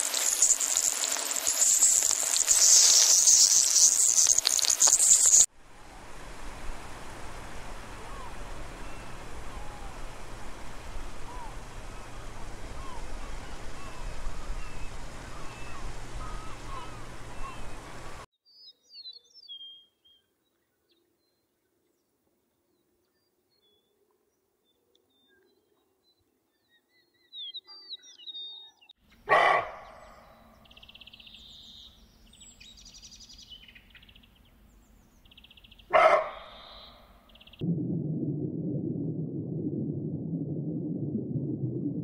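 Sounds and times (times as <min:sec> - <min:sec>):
water washing over rocks: 0:00.0 - 0:05.5
birds chirping: 0:11.3 - 0:20.2
loud sudden sounds: 0:37.6 - 0:42.0.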